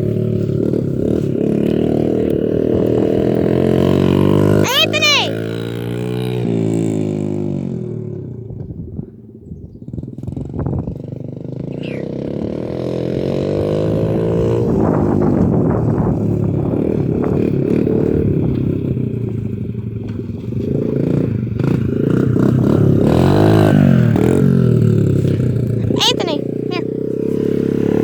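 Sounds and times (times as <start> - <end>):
dirt bike engine revving: 0.0 - 7.4, 20.8 - 28.0.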